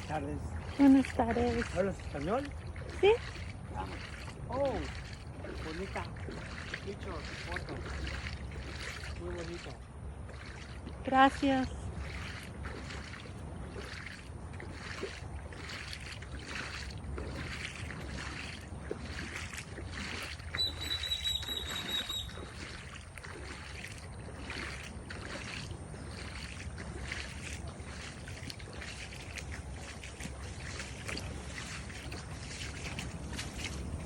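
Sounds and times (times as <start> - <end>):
water sloshing: 0.0 - 34.0
high wavering whistle-like tone: 20.5 - 22.5
low wind rumble: 29.4 - 34.0.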